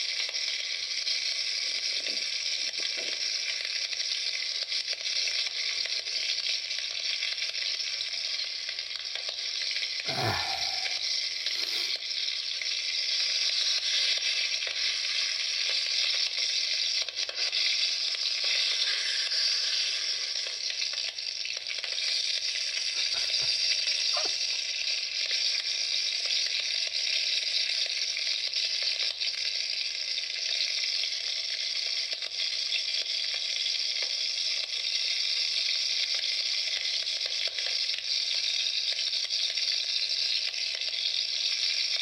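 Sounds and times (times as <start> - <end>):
campfire crackling: 0.0 - 25.8.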